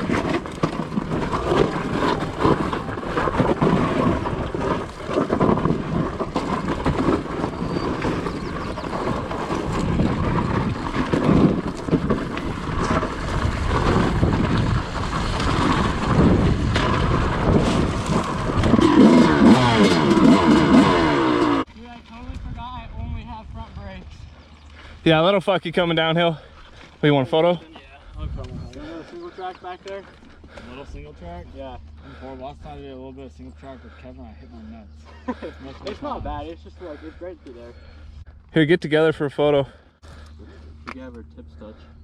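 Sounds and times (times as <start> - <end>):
wind rumble on microphone: 0.0 - 20.2, 22.1 - 25.0, 28.0 - 28.9
dirt bike engine running: 0.0 - 42.0.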